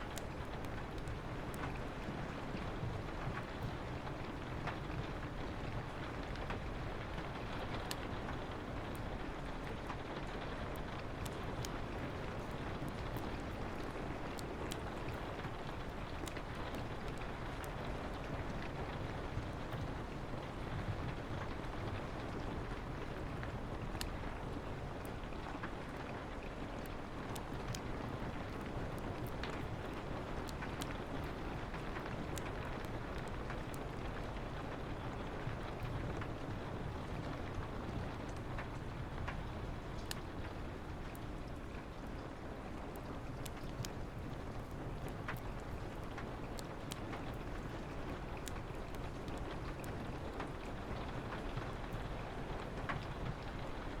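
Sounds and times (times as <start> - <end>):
fireplace crackling and popping: 0.0 - 54.0
rain on a window: 0.0 - 54.0.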